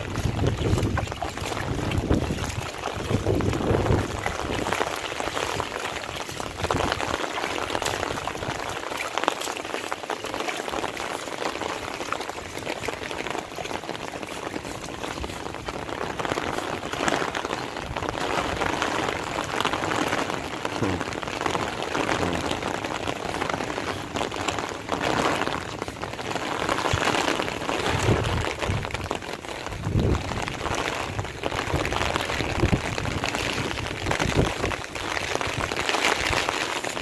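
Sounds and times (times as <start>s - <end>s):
wind buffeting microphone: 0.0s - 8.6s, 27.8s - 35.8s
steady rain falling: 0.0s - 37.0s.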